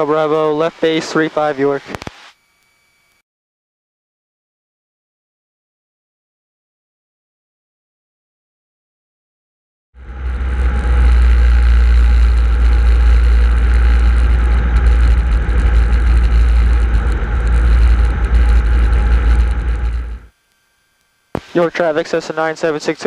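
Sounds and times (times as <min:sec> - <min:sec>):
airplane engine and propeller drone: 0:00.0 - 0:02.0, 0:10.0 - 0:20.3, 0:21.4 - 0:23.0.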